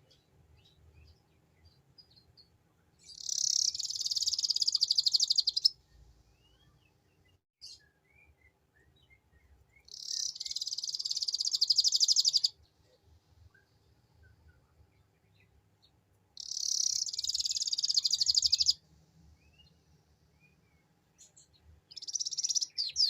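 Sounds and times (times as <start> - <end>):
canary trilling: 3.0 - 5.8, 9.9 - 12.6, 16.4 - 18.8, 21.9 - 23.0.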